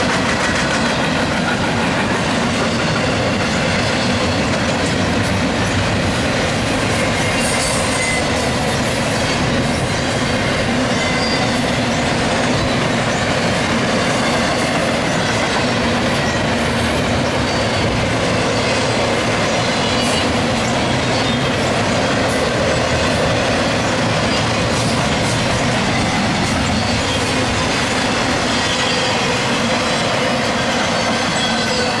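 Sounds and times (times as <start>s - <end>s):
steel wheels rumbling on rail: 0.0s - 32.0s.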